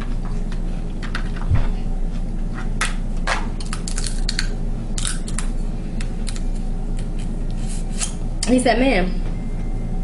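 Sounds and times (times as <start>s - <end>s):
steady low hum: 0.0s - 10.0s
shellfish shells cracking: 3.6s - 5.5s.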